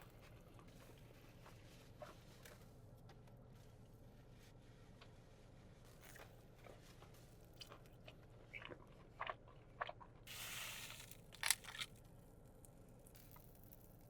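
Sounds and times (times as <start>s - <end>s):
crunching fried chicken: 7.6s - 14.0s.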